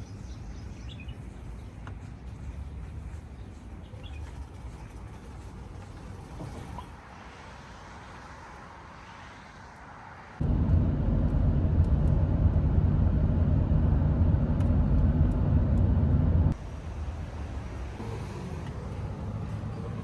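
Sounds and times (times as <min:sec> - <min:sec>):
low mechanical rumble: 0:10.4 - 0:16.6.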